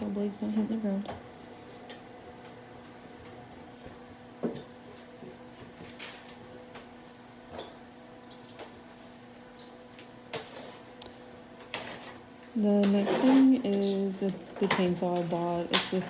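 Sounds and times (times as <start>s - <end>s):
low electrical hum: 0.0s - 16.0s
clicks and knocks of objects handled: 9.5s - 16.0s.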